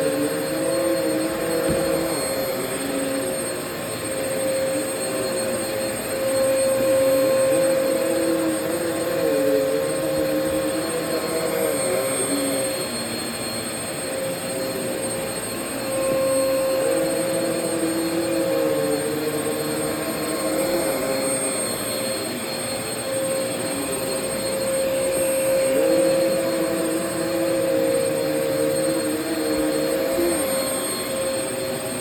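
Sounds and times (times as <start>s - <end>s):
vacuum cleaner motor whine: 0.0s - 32.0s
lower tone shifting in pitch: 14.9s - 32.0s.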